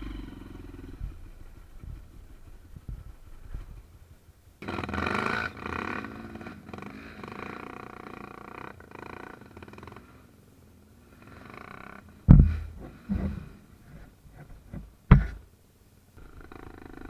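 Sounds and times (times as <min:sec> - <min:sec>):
off-road vehicle engine revving: 0:00.0 - 0:03.7, 0:04.6 - 0:10.3, 0:11.0 - 0:14.5.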